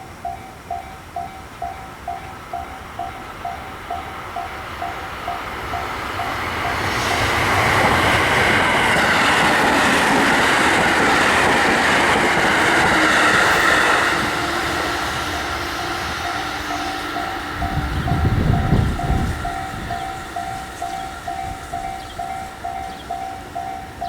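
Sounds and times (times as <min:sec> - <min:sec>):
level crossing warning bell: 0:00.0 - 0:07.4, 0:13.9 - 0:24.0
train wheels clattering on rails: 0:00.0 - 0:24.0.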